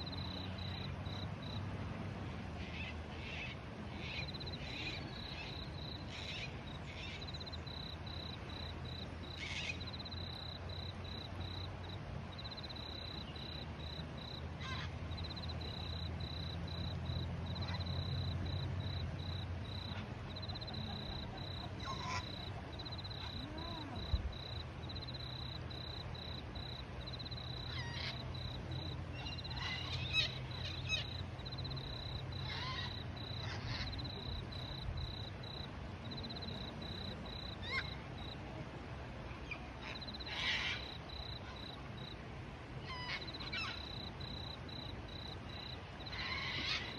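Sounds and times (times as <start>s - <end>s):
high insect trill: 15.1s - 38.4s, 39.9s - 42.2s, 43.3s - 46.9s.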